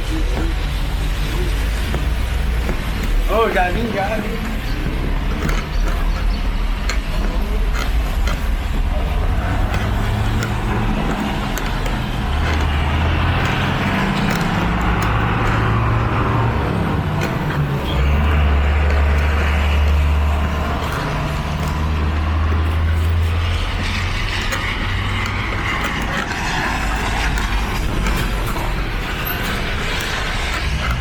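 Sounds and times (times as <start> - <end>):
heavy vehicle engine humming: 0.0 - 31.0
steady hiss of wet traffic: 8.9 - 30.9.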